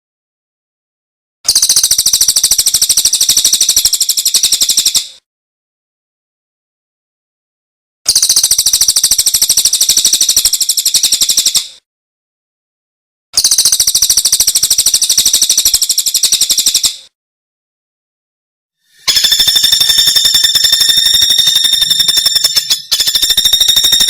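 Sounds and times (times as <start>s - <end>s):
songbird high trills: 18.9s - 24.0s.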